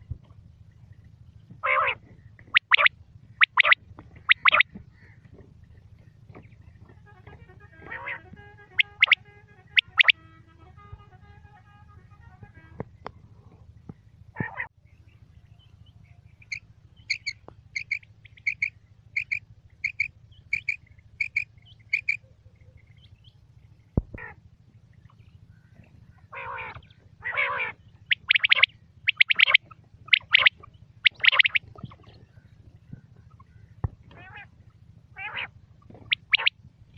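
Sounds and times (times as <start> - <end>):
quail calling: 1.6 - 5.4, 6.0 - 10.6, 14.4 - 14.7, 16.4 - 23.2, 24.1 - 24.4, 25.0 - 36.6.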